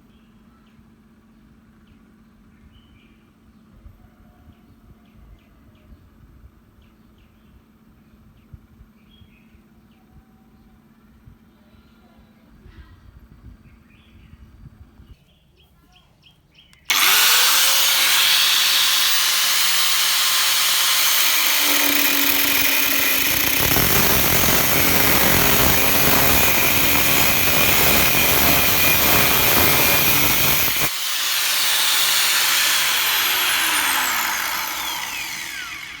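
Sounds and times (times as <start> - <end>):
angle grinder running: 16.9 - 36.0.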